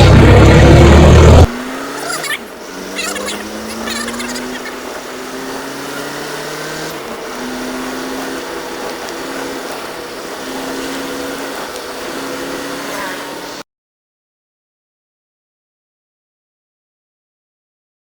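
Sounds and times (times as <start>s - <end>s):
vehicle engine droning whine: 0.0s - 13.6s.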